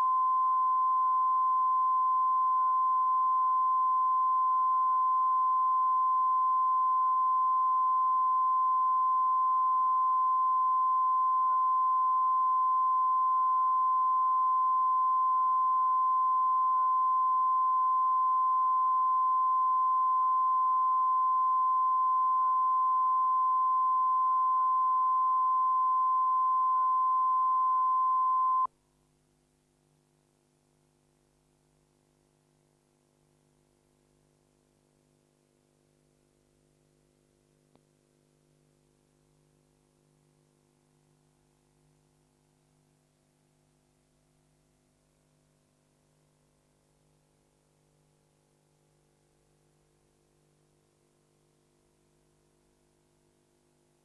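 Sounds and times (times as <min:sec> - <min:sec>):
television test tone: 0:00.0 - 0:28.7.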